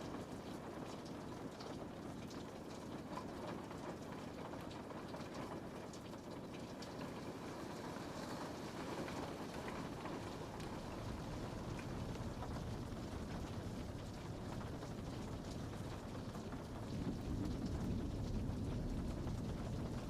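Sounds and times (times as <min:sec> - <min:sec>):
rain pattering on window: 0:00.0 - 0:20.0.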